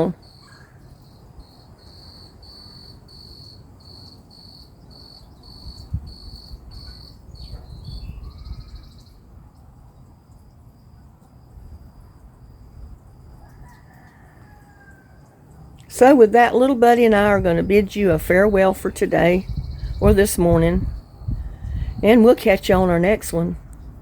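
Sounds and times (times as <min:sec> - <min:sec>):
cricket chirping: 0:00.1 - 0:15.9
low outdoor rumble: 0:14.9 - 0:24.0.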